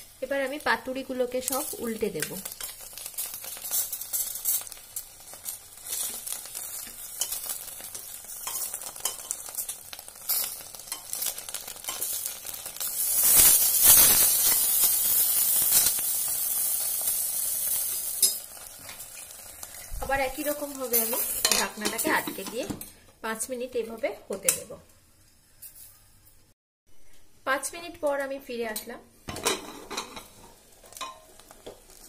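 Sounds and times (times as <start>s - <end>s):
fish sizzling in oil: 0.0s - 22.5s, 29.7s - 32.0s
metal spatula scraping and clicking: 5.9s - 12.1s.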